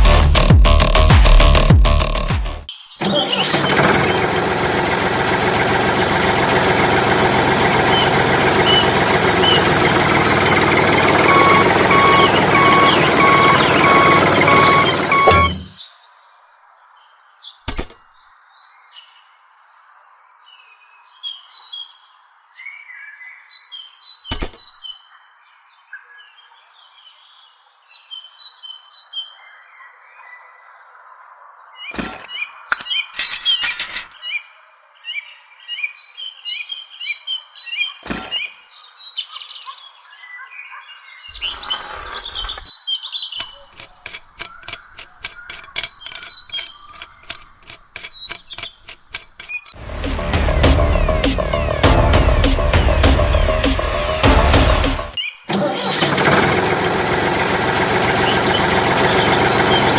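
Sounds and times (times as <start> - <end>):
birds chirping: 11.1 - 15.8
sharp clicks: 17.7 - 18.0, 24.3 - 24.6, 43.4 - 55.2
rapid ticking: 43.4 - 55.2
crickets trilling: 43.6 - 49.7.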